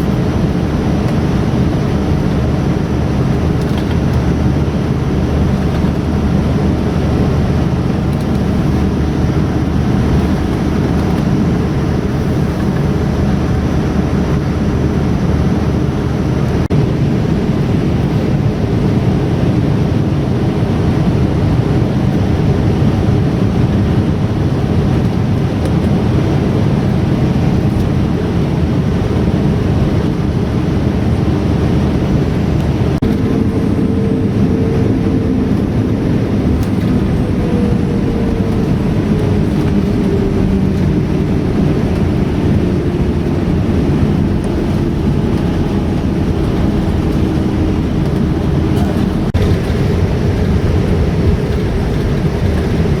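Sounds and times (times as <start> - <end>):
airliner cabin engine noise: 0.0 - 53.0
steady hum: 27.9 - 53.0.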